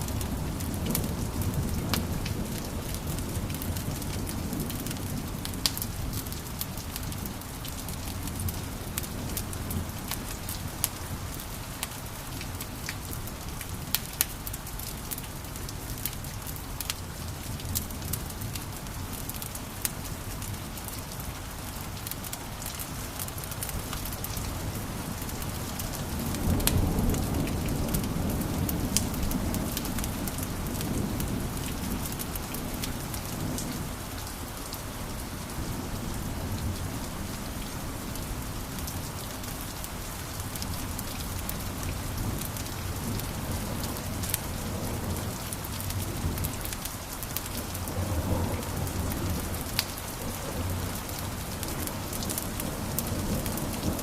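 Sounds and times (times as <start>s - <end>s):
wood fire crackling: 21.7s - 34.4s.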